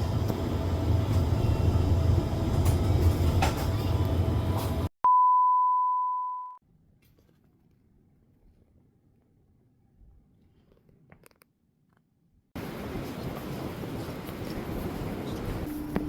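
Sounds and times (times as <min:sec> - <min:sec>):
vehicle cabin rumble: 0:00.0 - 0:04.9.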